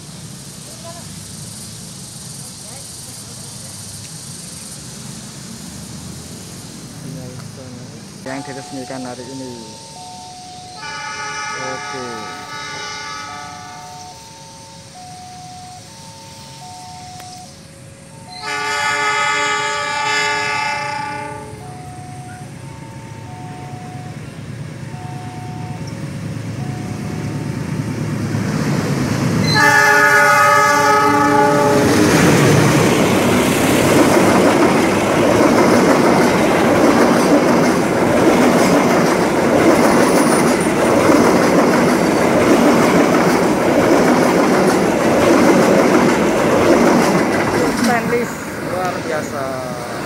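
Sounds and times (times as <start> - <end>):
wheels rattling on rails: 0.0 - 50.0
train horn multi-tone blast: 10.7 - 14.4, 18.2 - 22.4, 29.4 - 32.2.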